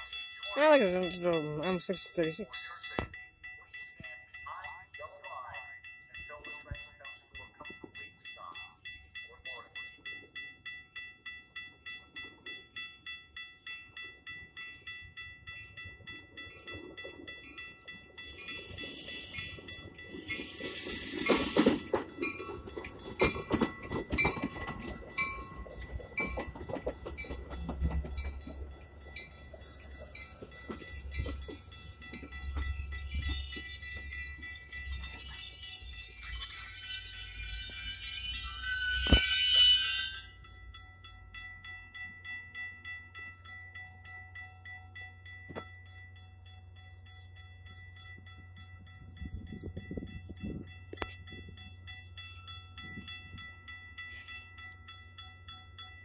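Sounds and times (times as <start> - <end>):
crossing bell dinging: 0.0 - 56.0
train low rumble: 0.0 - 56.0
wheels clicking over rail joints: 11.2 - 38.1
wheel squeal: 29.8 - 40.2.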